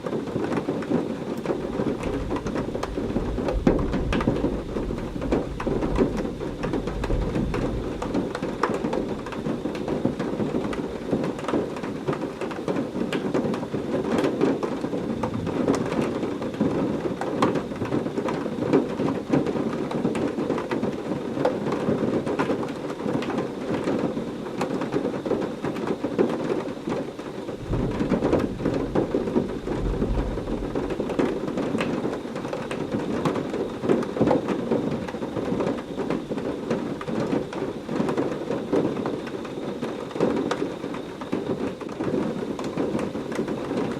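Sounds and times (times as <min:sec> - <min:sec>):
heavy rain falling: 0:00.0 - 0:43.9
low thunder roll: 0:01.6 - 0:10.8, 0:15.0 - 0:17.2, 0:27.6 - 0:33.0.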